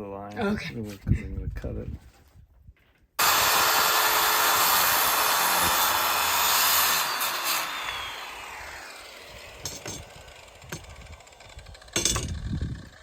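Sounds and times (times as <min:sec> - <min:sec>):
power saw cutting wood: 0:03.2 - 0:13.0.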